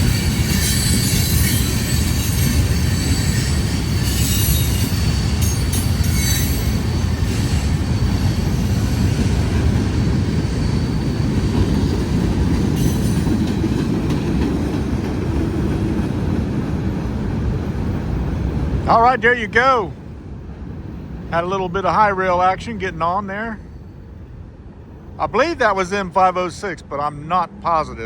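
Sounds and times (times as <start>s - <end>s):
high wheel squeal: 0.0s - 13.5s
train wheels rumbling on rail: 0.0s - 28.0s.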